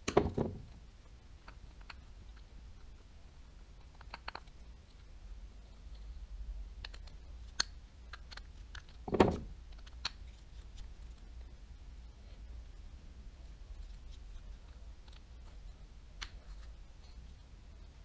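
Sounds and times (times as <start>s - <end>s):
clicks and taps of small parts: 1.4s - 3.1s, 3.8s - 5.1s, 6.7s - 11.3s, 16.2s - 17.2s.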